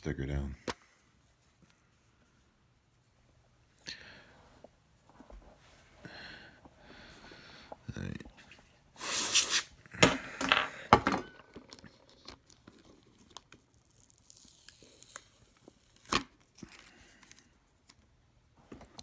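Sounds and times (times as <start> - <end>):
crinkling and tearing: 11.7 - 18.0.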